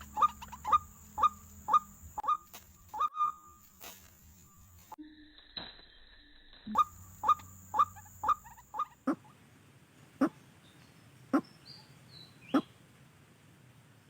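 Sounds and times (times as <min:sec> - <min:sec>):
bird giving sharp calls: 0:00.0 - 0:03.5, 0:06.8 - 0:09.3.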